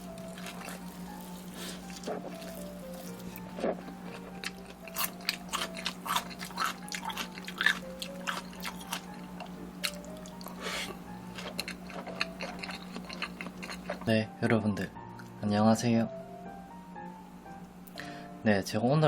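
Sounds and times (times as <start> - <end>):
crunching and wet chewing: 0.0 - 14.1
steady low hum: 0.0 - 19.0.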